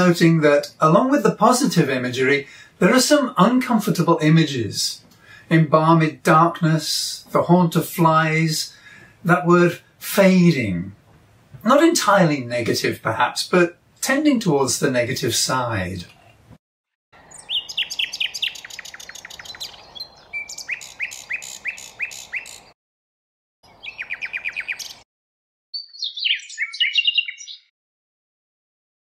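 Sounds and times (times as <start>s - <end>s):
nightingale singing: 17.2s - 22.8s, 23.6s - 25.0s, 25.8s - 27.7s.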